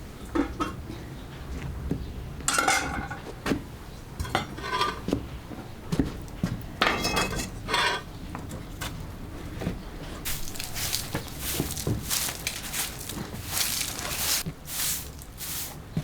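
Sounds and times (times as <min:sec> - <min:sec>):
dishes and cutlery clinking: 0:04.2 - 0:05.1, 0:06.8 - 0:08.1.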